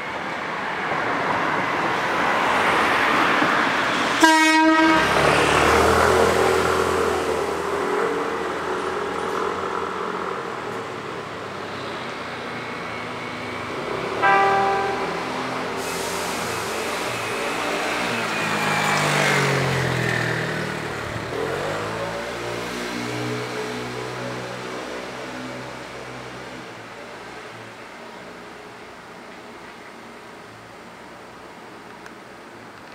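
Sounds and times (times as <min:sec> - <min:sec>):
train horn blast: 0:04.2 - 0:05.2, 0:14.2 - 0:16.0.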